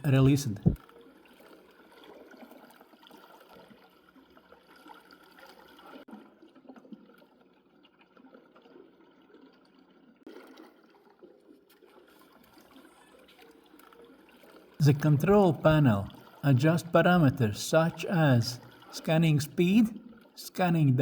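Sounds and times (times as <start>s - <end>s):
water trickling and lapping: 0.0s - 21.0s.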